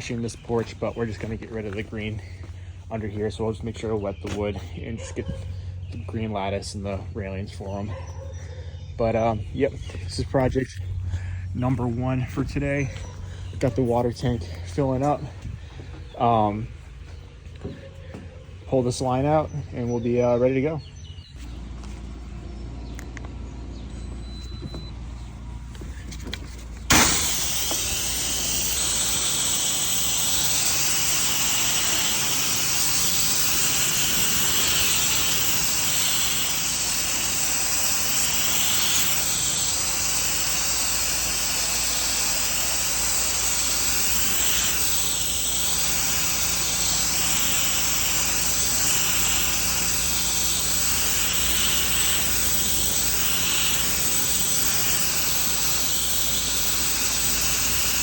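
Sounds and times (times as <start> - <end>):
pressure washer spraying water: 25.8 - 58.0.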